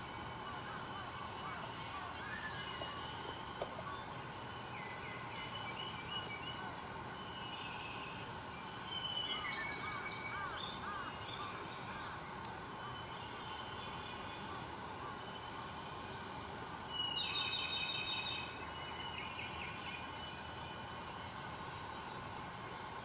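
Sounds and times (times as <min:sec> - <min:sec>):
steady background hiss: 0:00.0 - 0:23.0
wild birds calling and singing: 0:00.1 - 0:07.8, 0:08.9 - 0:15.6.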